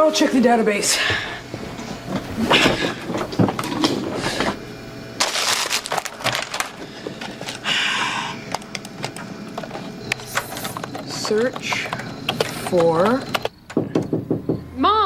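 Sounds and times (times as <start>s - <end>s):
computer keyboard typing clicks: 8.5s - 13.6s.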